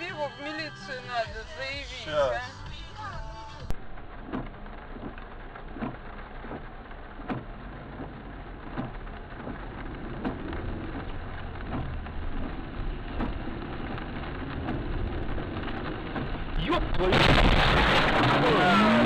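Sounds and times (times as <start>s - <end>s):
tyre and road noise: 0.0s - 19.0s
low rumble: 2.6s - 19.0s.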